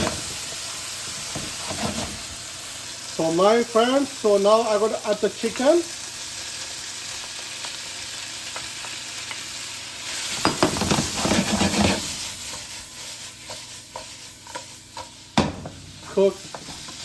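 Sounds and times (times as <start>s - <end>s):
food sizzling in a frying pan: 0.0s - 17.0s
stirring in a pan: 1.2s - 2.4s, 10.0s - 17.0s.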